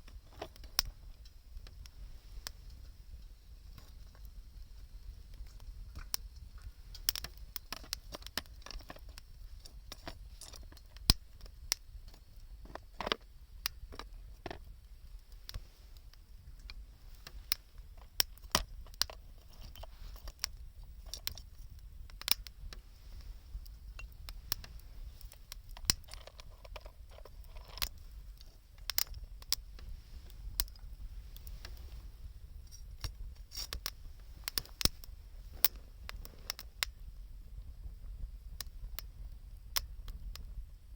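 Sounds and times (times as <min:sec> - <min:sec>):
campfire crackling and popping: 0:00.0 - 0:40.8
low steady rumble: 0:11.0 - 0:40.9.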